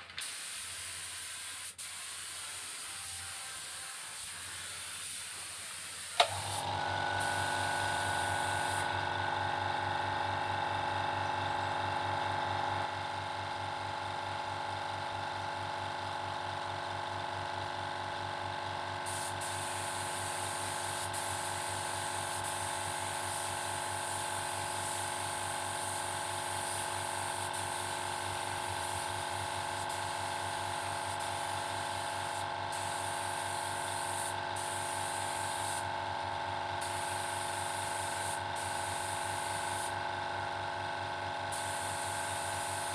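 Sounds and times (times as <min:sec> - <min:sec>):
paint spray hiss: 0:00.1 - 0:06.6, 0:07.2 - 0:08.9, 0:19.0 - 0:35.9, 0:36.8 - 0:40.0, 0:41.5 - 0:42.9
spray gun air supply humming: 0:00.1 - 0:09.2, 0:19.0 - 0:36.0, 0:36.7 - 0:40.0, 0:41.5 - 0:42.9.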